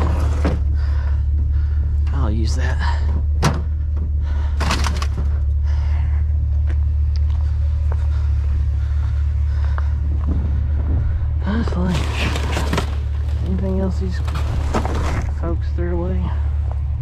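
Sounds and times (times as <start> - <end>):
rustling and clatter: 0.0 - 1.9, 6.6 - 17.0
steady low rumble: 0.0 - 17.0.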